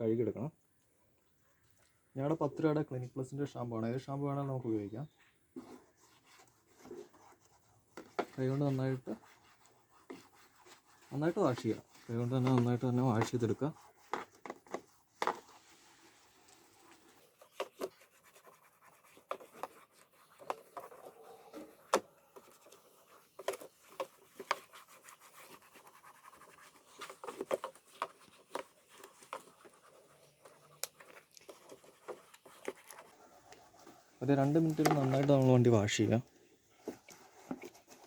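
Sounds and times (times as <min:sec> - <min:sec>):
hands scrubbing plastic panel: 0:06.1 - 0:36.0.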